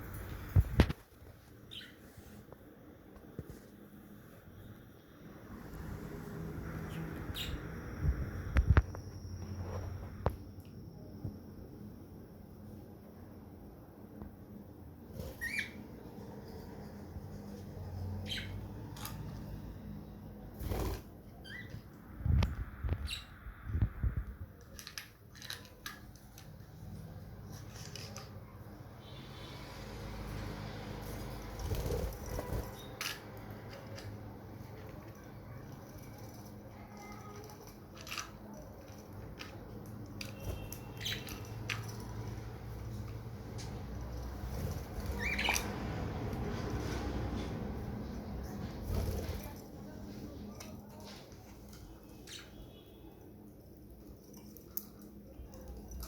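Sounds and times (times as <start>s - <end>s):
budgerigars chirping: 45.1s - 45.7s.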